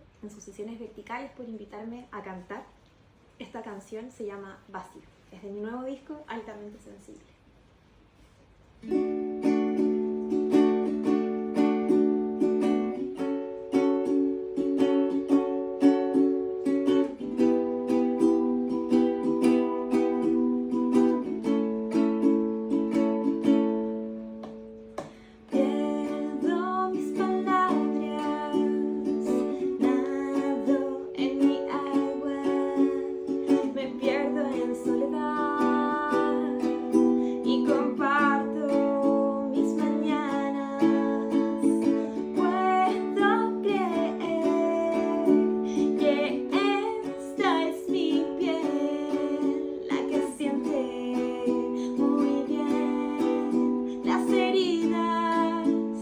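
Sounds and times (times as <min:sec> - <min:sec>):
acoustic string instrument chords: 0:08.8 - 0:56.0
woman singing slow song: 0:25.2 - 0:56.0.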